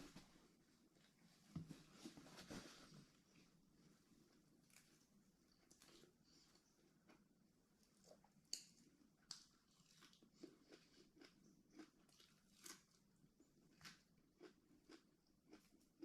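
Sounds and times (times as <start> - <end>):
person chewing and crunching: 4.6 - 16.0.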